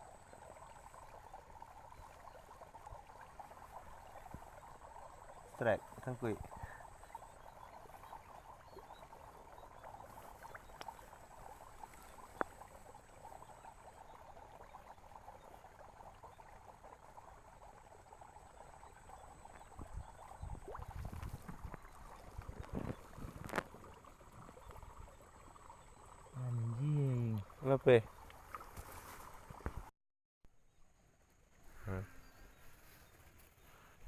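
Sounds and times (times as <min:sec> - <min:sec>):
frogs and insects chorus: 0:00.0 - 0:28.2
sloshing in water and mud: 0:20.1 - 0:24.8.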